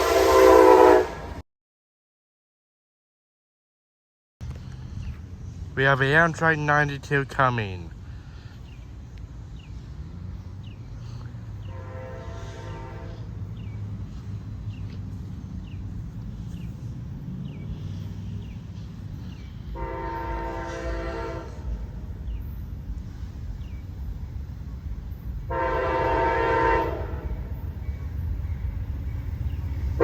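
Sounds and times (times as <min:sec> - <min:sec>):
engine and rail rumble: 0:00.0 - 0:01.4, 0:04.4 - 0:30.0
locomotive air horn blasts: 0:00.0 - 0:01.4, 0:11.6 - 0:13.4, 0:19.7 - 0:22.0, 0:25.5 - 0:27.6.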